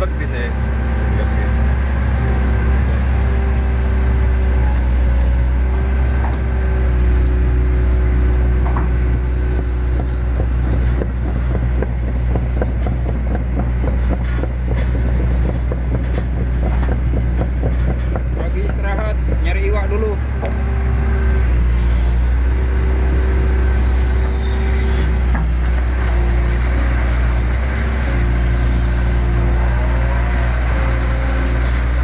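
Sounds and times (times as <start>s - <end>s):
excavator diesel engine running: 0.0s - 32.0s
excavator bucket in water: 23.0s - 32.0s.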